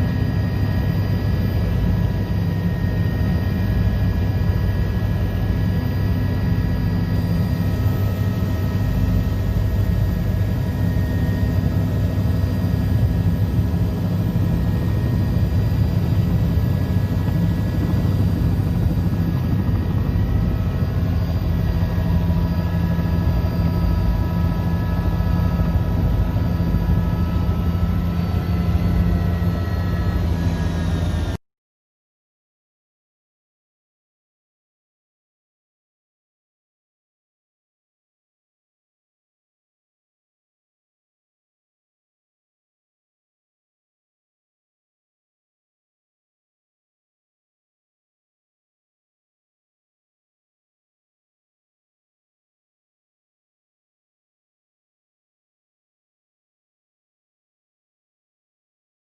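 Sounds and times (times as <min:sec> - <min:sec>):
helicopter rotor drone: 0:00.0 - 0:31.4.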